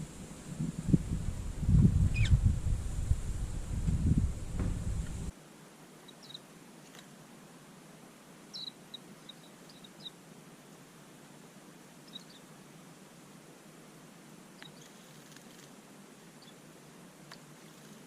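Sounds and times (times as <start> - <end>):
loud low rumble: 0.0 - 5.3
songbirds chirping: 0.0 - 5.3, 8.5 - 10.9.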